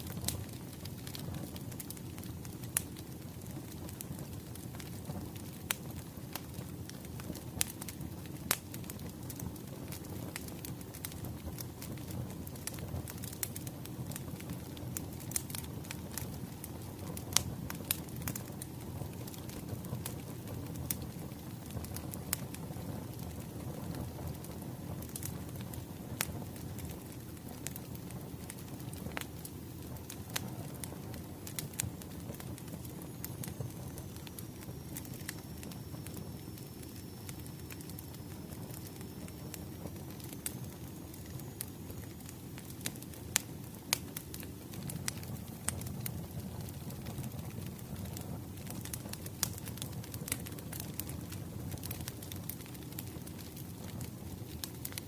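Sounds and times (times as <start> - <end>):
wood fire crackling: 0.0 - 55.0
faint high steady tone: 33.3 - 42.5.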